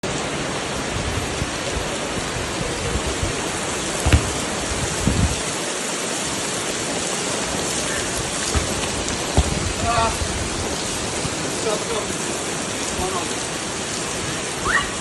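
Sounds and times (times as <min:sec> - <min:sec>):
steady rain falling: 0:00.0 - 0:15.0
dull thumps: 0:04.0 - 0:05.5, 0:08.3 - 0:11.3.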